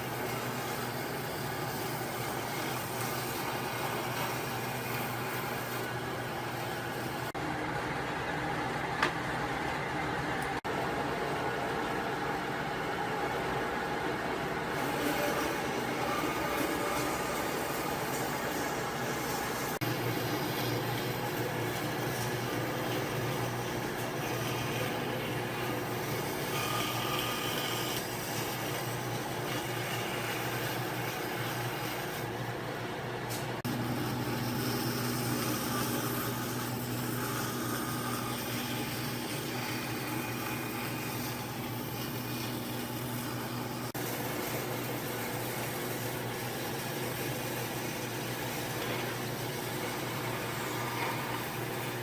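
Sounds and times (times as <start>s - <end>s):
machinery humming: 0.0s - 52.0s.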